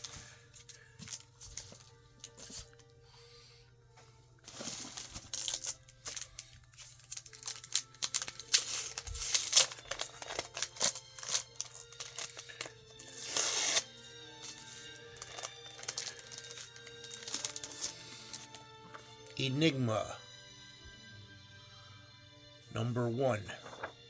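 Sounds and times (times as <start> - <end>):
plastic packaging crinkling: 0.0 - 2.9, 4.5 - 18.7.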